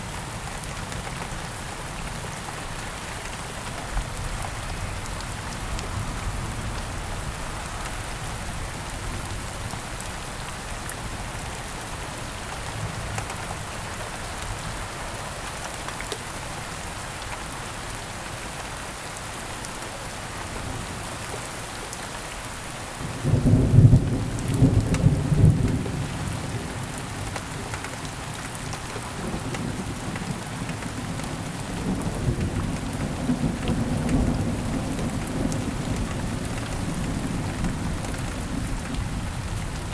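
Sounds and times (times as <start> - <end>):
heavy rain: 0.0 - 39.9
thunder crack and rumble: 29.2 - 39.9.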